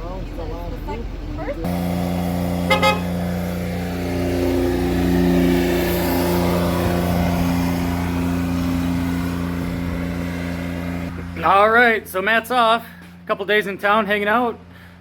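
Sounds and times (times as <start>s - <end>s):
vehicle engine running: 0.0s - 15.0s
horn beeps: 1.7s - 3.3s.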